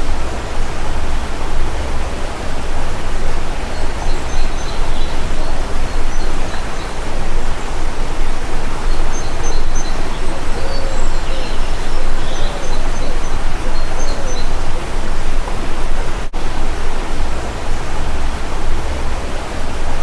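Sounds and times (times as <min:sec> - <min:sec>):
faint high bird chirps: 0:00.0 - 0:15.4
stream water rushing: 0:00.0 - 0:20.0.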